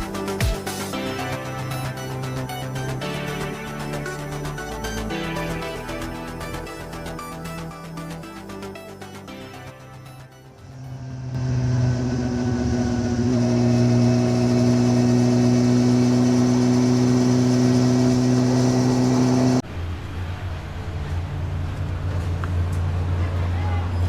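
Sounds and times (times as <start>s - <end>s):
traffic drone: 10.5s - 24.0s
vehicle engine running: 10.6s - 24.0s.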